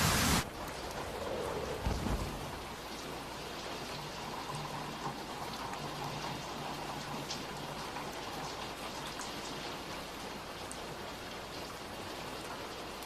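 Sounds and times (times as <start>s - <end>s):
steady rain falling: 0.0s - 13.0s
low rumble of thunder: 0.4s - 3.0s.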